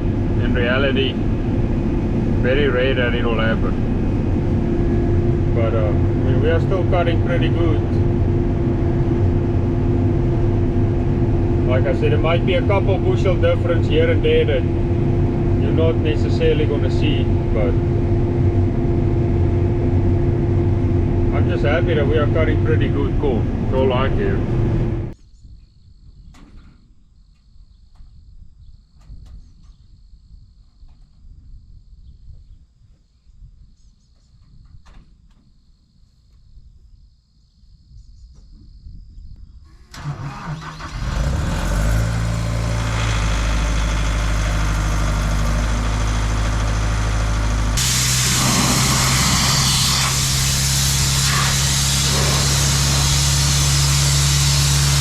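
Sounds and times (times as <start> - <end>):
faint low rumble: 0.0 - 27.0
engine cranking and running: 39.8 - 55.0.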